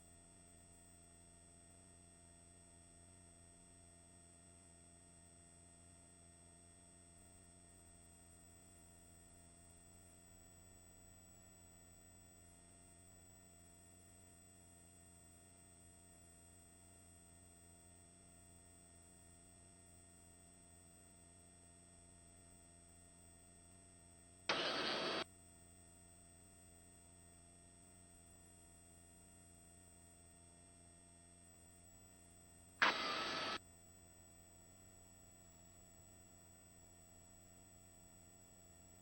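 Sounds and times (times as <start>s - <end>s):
faint electrical hum: 24.5s - 25.2s, 32.8s - 33.6s
short bursts of hiss: 24.5s - 25.2s, 32.8s - 33.6s.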